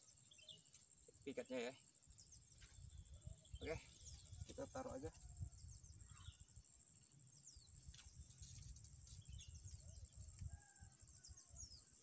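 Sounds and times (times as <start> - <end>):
faint thin bird chirps: 1.3 - 6.6
low wind-like rumble: 2.7 - 6.6, 7.5 - 11.8.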